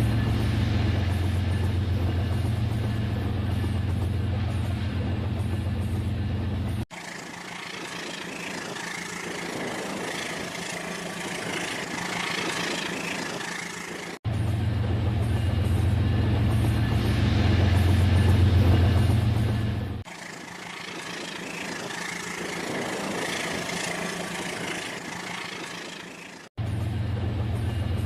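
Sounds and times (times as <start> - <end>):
model train engine hum: 0.0 - 28.0
hissing rattling rolling noise: 6.9 - 14.2, 16.4 - 26.5.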